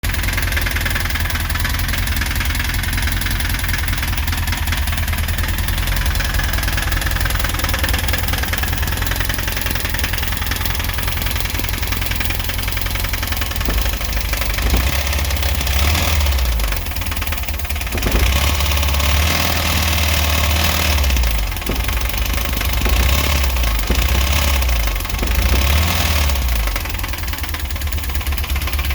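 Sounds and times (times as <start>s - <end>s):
engine running with rhythmic knock: 0.0s - 28.9s.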